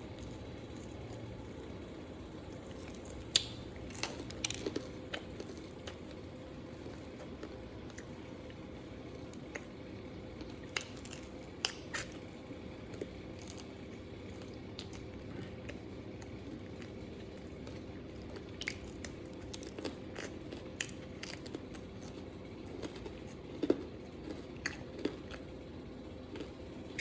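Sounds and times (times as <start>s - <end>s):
faint steady hum: 0.0s - 27.0s
biting and chewing: 12.8s - 25.5s.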